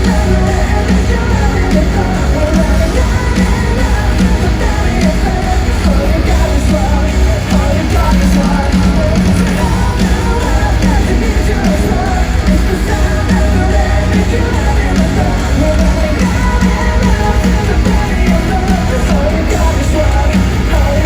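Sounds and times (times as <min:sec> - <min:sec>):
heavy distorted guitars: 0:00.0 - 0:21.0
pounding bass and drums: 0:00.0 - 0:21.0
sung and shouted vocals: 0:00.0 - 0:21.0.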